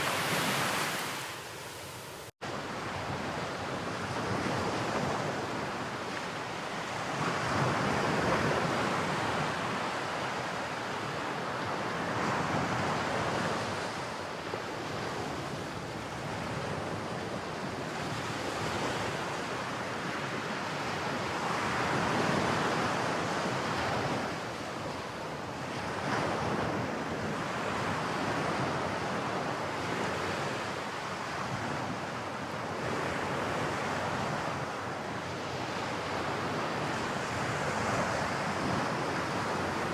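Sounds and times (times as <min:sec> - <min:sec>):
ocean surf breaking: 0:00.0 - 0:02.3
wind on microphone: 0:31.3 - 0:39.9.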